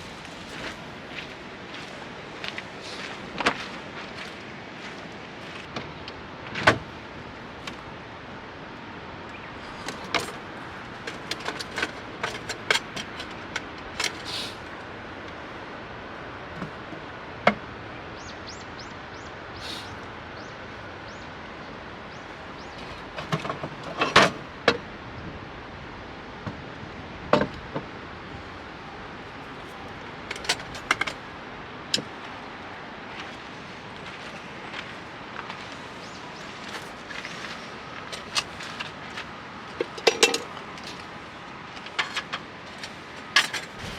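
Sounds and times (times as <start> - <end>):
objects clicking and knocking: 11.0 - 14.3, 39.7 - 41.1
background hiss: 14.0 - 15.7, 19.5 - 20.2
clattering: 39.8 - 40.5.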